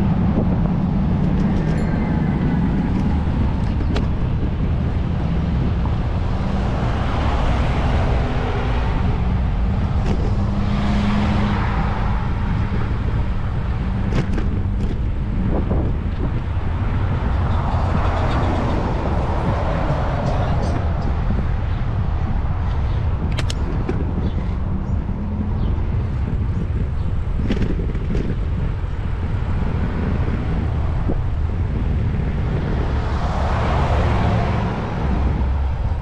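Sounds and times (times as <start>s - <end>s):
cars passing: 0.0s - 36.0s
road noise: 0.0s - 36.0s
wind on microphone: 0.0s - 36.0s
sharp clicks: 23.3s - 24.0s.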